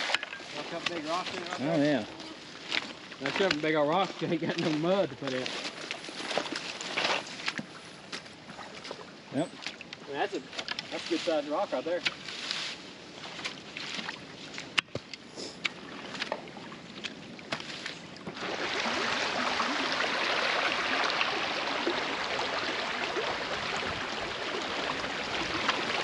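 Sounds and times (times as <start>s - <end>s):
creek water splashing: 0.0s - 26.0s
rocks and sticks knocking: 2.7s - 3.8s, 14.6s - 16.4s
water rushing: 18.2s - 26.0s.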